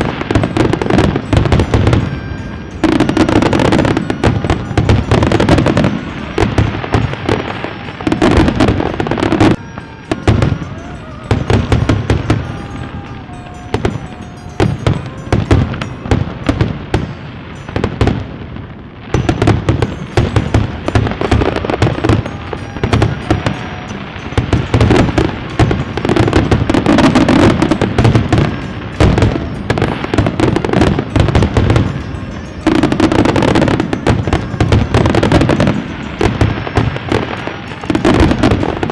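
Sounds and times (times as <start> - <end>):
fireworks bangs and crackles: 0.0 - 38.9
music: 0.0 - 38.9.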